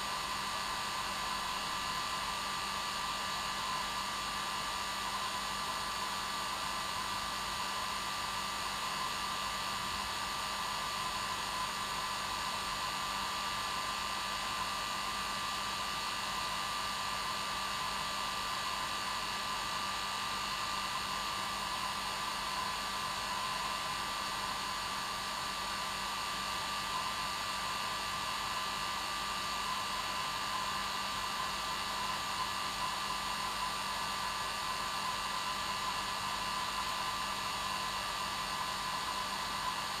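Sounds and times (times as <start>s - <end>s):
hair dryer running: 17.7s - 40.0s.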